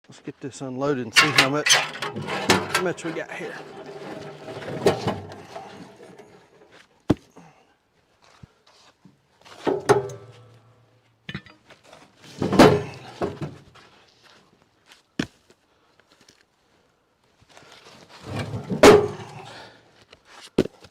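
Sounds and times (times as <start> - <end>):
firewood dropping thunks: 1.2 - 7.2, 9.6 - 10.4, 12.3 - 13.7, 18.2 - 19.6.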